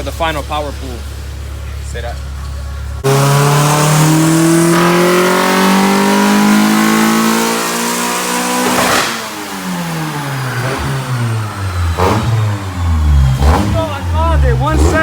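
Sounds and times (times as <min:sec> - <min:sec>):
car engine revving under load: 0:00.0 - 0:15.0.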